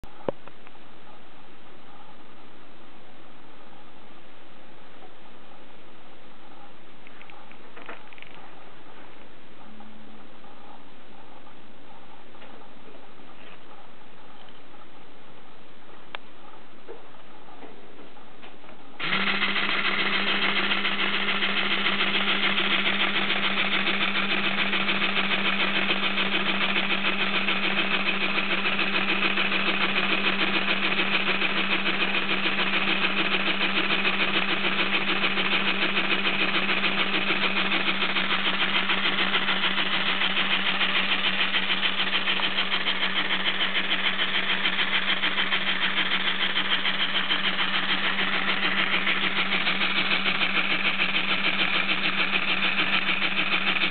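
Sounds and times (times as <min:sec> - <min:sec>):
motor hum: 0:19.0 - 0:53.9
toy compressor mechanical chatter: 0:19.0 - 0:53.9.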